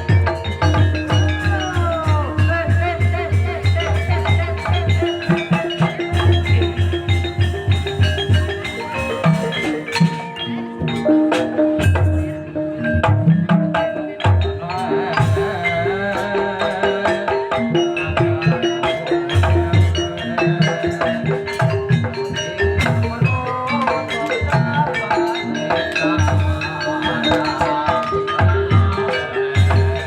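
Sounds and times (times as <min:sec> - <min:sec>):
low drum beat: 0:00.0 - 0:10.1
tuned mallet percussion: 0:00.0 - 0:30.0.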